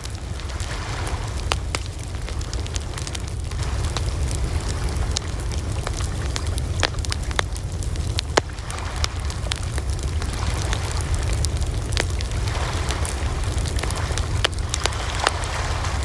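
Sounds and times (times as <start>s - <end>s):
bonfire crackling and popping: 0.0s - 16.0s.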